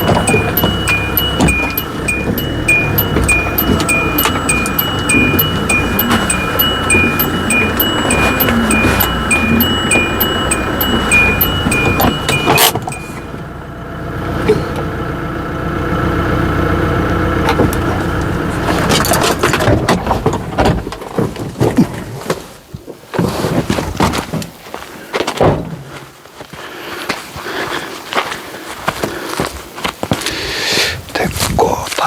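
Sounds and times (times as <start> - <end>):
knocks and clatters: 0.0 - 13.2
repeating electronic chime: 0.0 - 13.4
low engine hum: 0.0 - 20.9.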